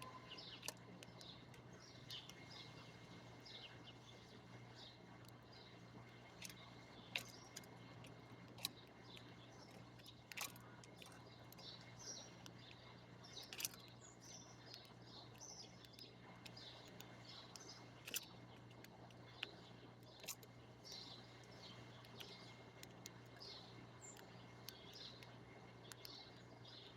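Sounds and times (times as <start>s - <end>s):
small birds chirping: 0.0s - 26.9s
sharp clicks: 6.4s - 14.0s, 14.6s - 21.1s, 22.0s - 26.4s.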